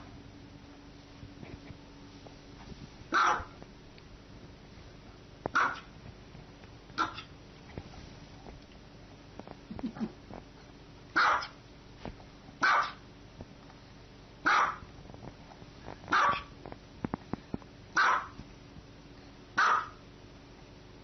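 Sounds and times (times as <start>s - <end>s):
dog barking: 3.1s - 3.6s, 5.5s - 5.9s, 7.0s - 7.3s, 11.2s - 11.6s, 12.6s - 13.0s, 14.4s - 14.8s, 16.1s - 16.5s, 18.0s - 18.4s, 19.6s - 20.0s.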